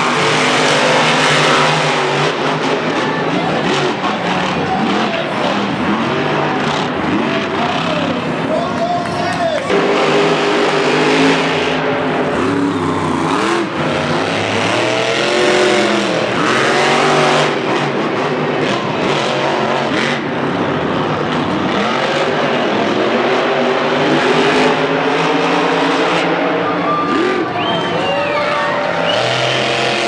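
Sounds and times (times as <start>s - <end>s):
truck engines revving hard: 0.0s - 30.0s.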